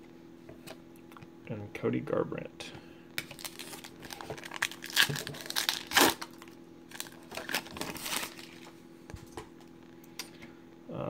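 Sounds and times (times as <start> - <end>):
wrapper crinkling and tearing: 3.2 - 8.7.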